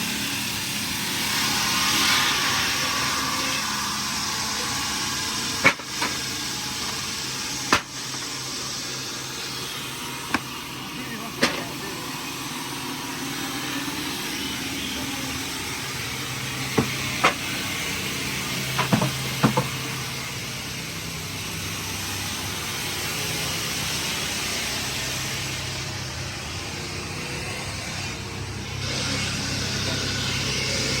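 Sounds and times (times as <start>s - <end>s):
heavy engine running: 0.0s - 31.0s
sharp knocks: 7.7s - 8.2s, 10.3s - 10.5s, 16.8s - 17.4s.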